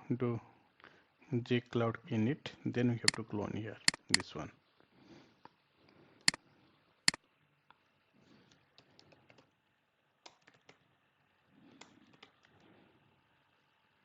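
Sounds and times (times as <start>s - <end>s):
computer keyboard typing: 3.9s - 4.2s, 10.3s - 10.8s.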